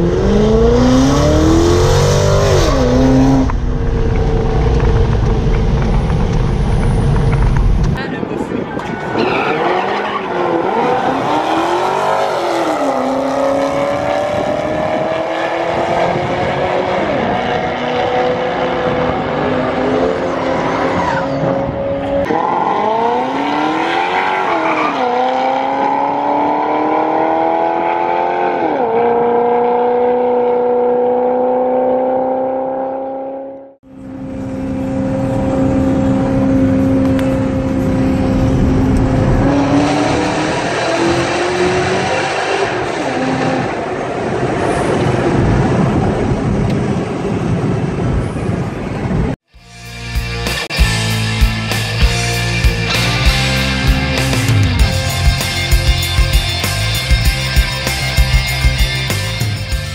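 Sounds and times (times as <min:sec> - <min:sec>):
car engine accelerating with upshifts: 0:00.0 - 0:08.0, 0:09.2 - 0:45.1.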